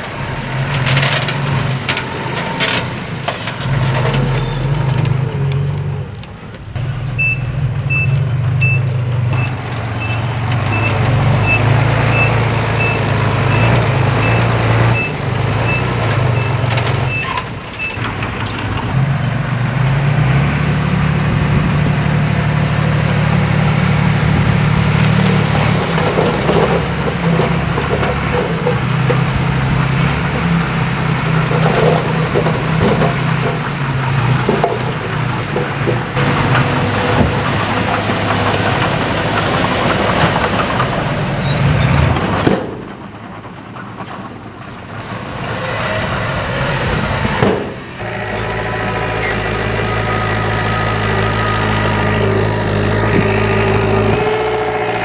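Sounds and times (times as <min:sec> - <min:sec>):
diesel engine running: 0:00.0 - 0:55.0
reversing alarm beeps: 0:07.2 - 0:18.0.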